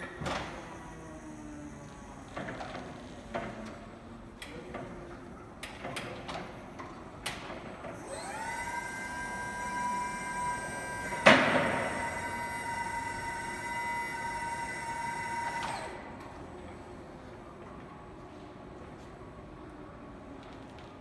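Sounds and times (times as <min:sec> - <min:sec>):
motor high whine: 0:08.0 - 0:16.4
loud clunk: 0:11.1 - 0:12.1.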